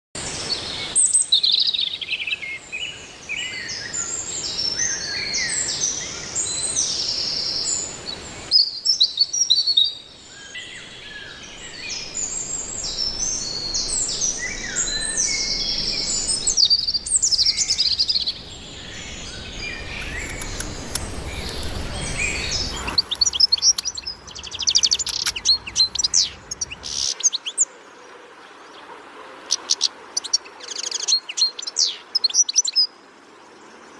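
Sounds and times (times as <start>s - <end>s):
birds chirping and singing: 0.4s - 27.7s, 28.8s - 32.9s.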